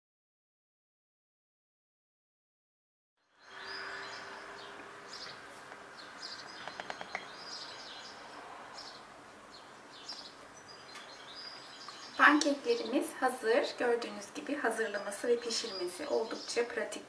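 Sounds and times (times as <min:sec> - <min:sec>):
small birds chirping: 0:03.2 - 0:17.0
run of clicks: 0:06.6 - 0:07.3.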